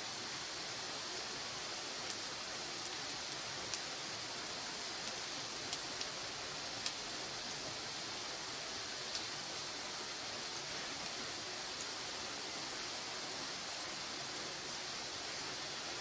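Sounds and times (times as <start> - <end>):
fire hissing: 0.0 - 16.0
firewood crackling and popping: 2.0 - 7.9, 8.9 - 9.4, 10.1 - 12.0.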